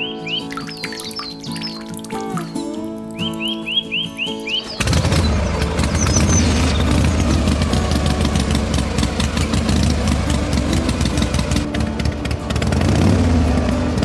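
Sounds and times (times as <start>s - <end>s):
engine idling: 4.5s - 14.0s.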